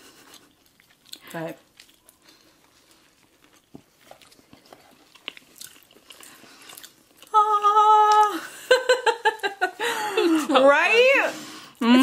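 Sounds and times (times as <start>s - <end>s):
chewing a biscuit: 0.0s - 7.4s
person humming mmm: 11.8s - 12.0s.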